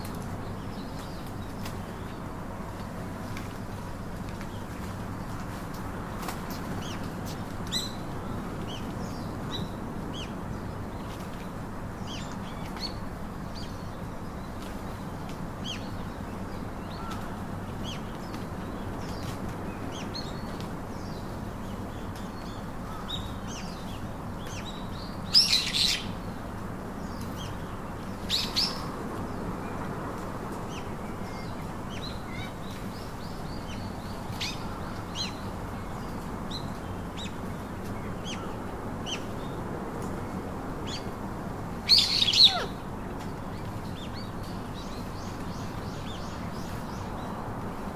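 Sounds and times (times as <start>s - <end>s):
low background noise: 0.0s - 47.9s
parakeets chirping: 41.9s - 42.7s.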